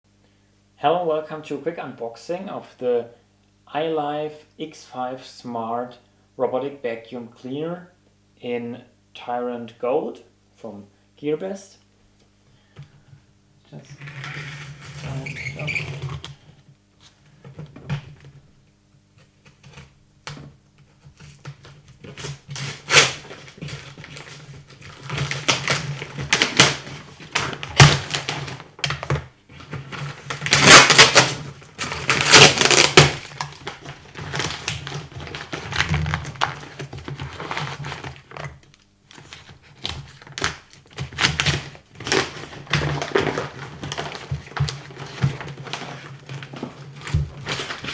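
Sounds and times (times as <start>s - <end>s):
cardboard box being handled: 42.0s - 47.9s.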